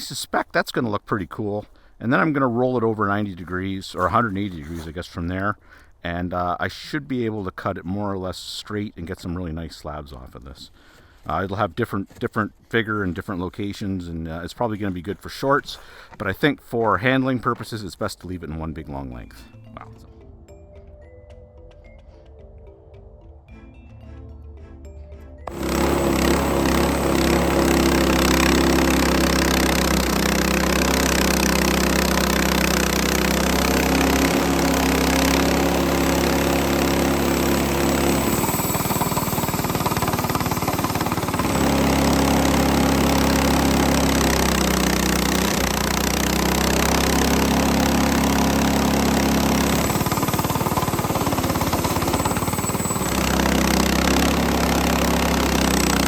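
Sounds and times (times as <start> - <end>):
small engine running under load: 23.5 - 56.0.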